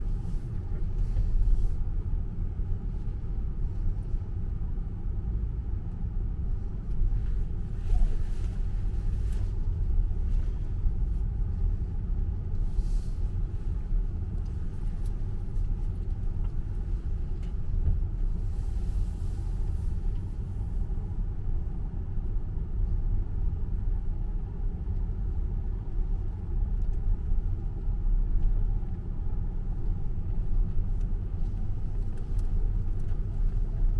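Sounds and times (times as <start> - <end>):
tyre and road noise in car: 6.6 - 22.1, 23.5 - 33.9.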